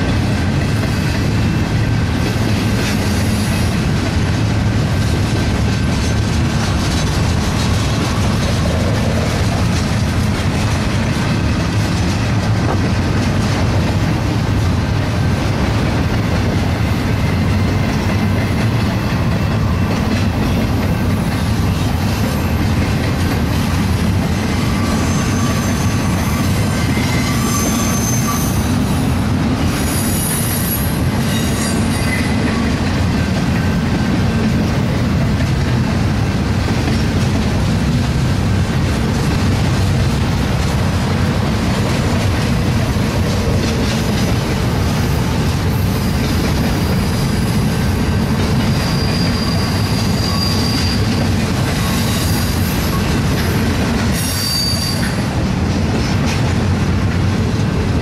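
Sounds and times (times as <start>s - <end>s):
high-pitched wheel squeals: 24.5s - 29.1s, 29.7s - 32.6s, 48.5s - 53.1s, 54.1s - 55.3s.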